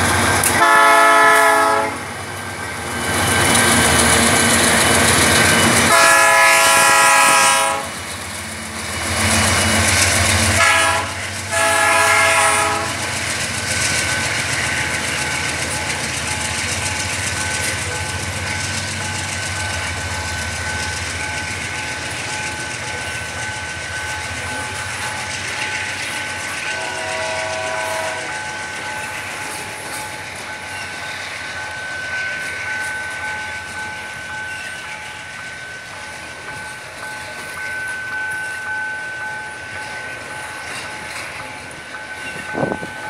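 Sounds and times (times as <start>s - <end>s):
train wheels rumbling and rattling: 0.0s - 43.0s
train horn: 0.5s - 2.1s, 5.8s - 8.0s, 10.4s - 13.1s, 26.6s - 28.4s.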